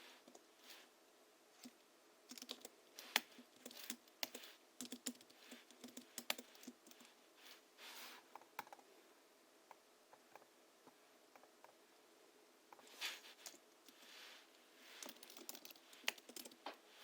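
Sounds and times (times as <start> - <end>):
keyboard typing: 1.6 - 7.1, 15.0 - 16.6.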